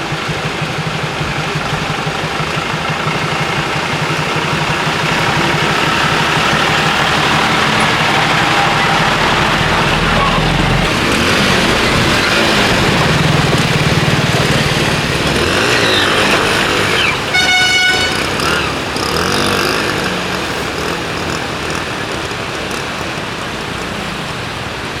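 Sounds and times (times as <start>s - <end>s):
road traffic engines: 0.0s - 25.0s
vehicle horn honking: 16.7s - 19.8s.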